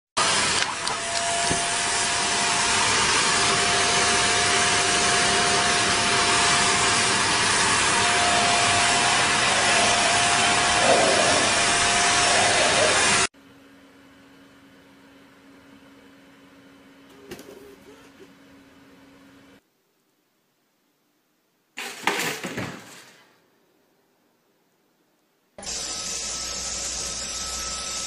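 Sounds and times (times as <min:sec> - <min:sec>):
electric appliance motor whining: 0:00.2 - 0:13.3, 0:25.6 - 0:28.0.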